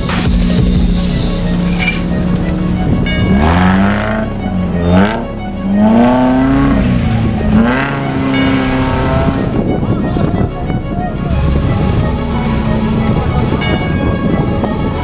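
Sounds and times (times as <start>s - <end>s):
background music: 0.0s - 15.0s
engine revving hard: 2.6s - 9.6s.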